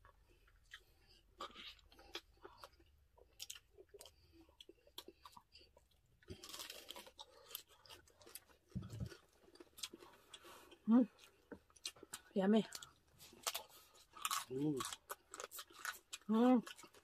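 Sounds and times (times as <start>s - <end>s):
crunching crispy pork skin: 6.3s - 10.0s, 13.2s - 17.0s.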